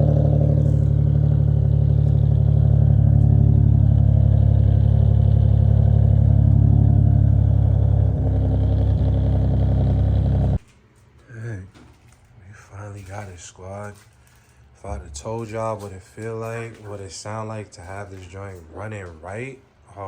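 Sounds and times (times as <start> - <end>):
car engine running steadily: 0.0 - 10.6.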